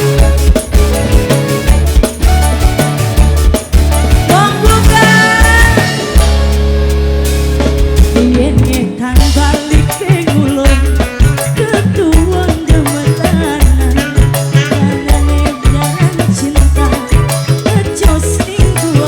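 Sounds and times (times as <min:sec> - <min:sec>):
heavy bass beat: 0:00.0 - 0:11.5
busy percussion: 0:00.0 - 0:19.0
wavering melody line: 0:00.0 - 0:19.0.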